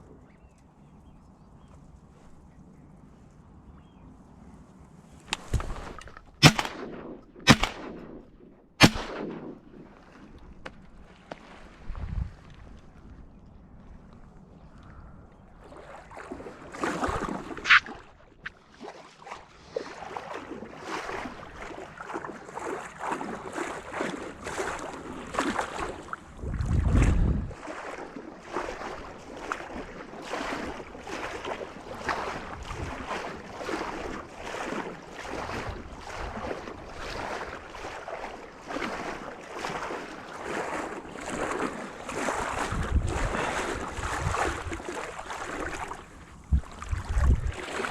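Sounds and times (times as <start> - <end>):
water splashing in strokes: 5.3 - 12.8, 15.6 - 47.9
wind on microphone: 11.8 - 13.3, 25.7 - 27.7, 31.9 - 34.2, 42.1 - 47.9.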